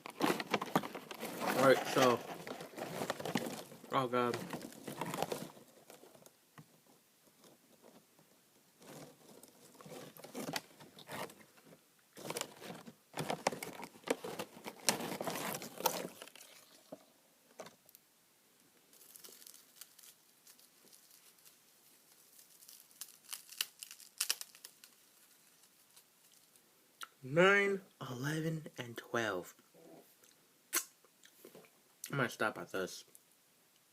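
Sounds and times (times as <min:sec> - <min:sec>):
crinkling and crunching seaweed snack: 0:00.0 - 0:06.3, 0:12.2 - 0:16.9, 0:18.9 - 0:26.6.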